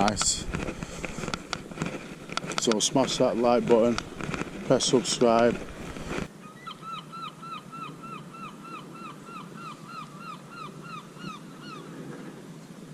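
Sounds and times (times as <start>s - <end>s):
faint outdoor background: 0.0s - 12.9s
bird calling repeated note: 6.4s - 11.9s.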